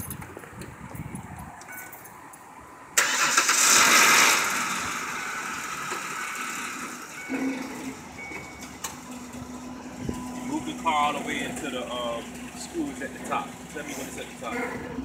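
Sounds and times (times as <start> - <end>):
truck engine starter: 3.0 - 14.5
truck engine revving and idling: 3.0 - 15.0.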